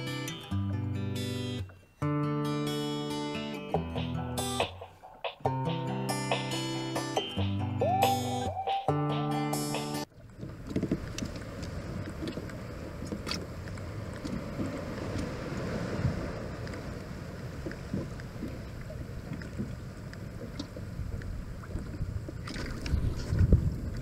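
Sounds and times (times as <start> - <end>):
water lapping against kayak hull: 10.1 - 24.0
wind buffeting microphone: 10.4 - 24.0.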